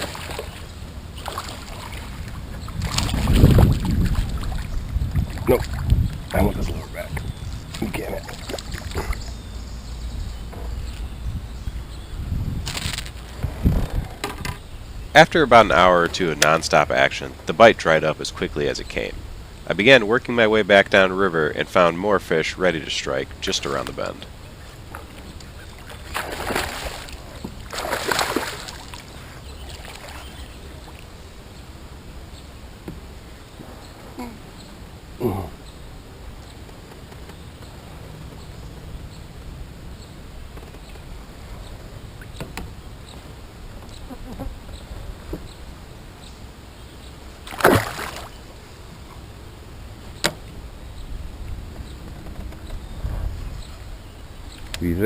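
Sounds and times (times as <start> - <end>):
paddle splashing in water: 0.0 - 6.0, 7.7 - 9.4, 24.8 - 31.0, 47.4 - 48.4
low steady rumble: 0.0 - 29.7
splash on water surface: 26.0 - 29.0, 47.4 - 48.3.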